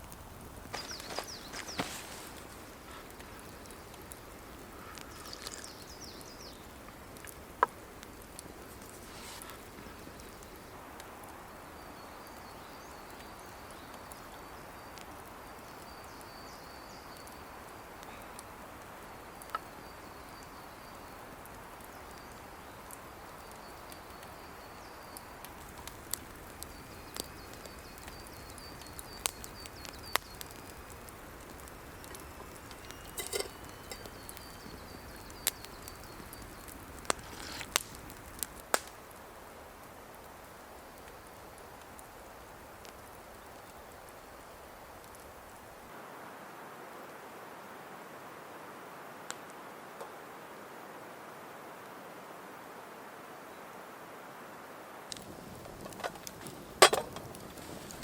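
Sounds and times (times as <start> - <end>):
steady noisy hiss: 0.0 - 58.0
sharp snaps and clicks: 25.1 - 39.2.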